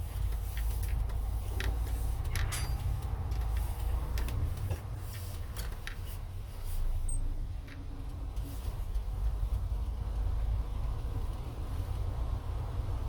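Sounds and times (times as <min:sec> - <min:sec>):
road and engine rumble: 0:00.0 - 0:13.0
clicks and rattles: 0:00.6 - 0:04.8.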